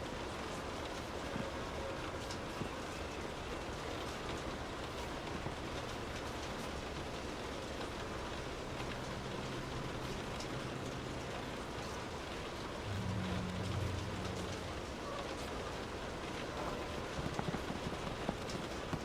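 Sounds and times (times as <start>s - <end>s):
rain on car roof: 0.0s - 19.0s
low rumble: 12.8s - 16.1s.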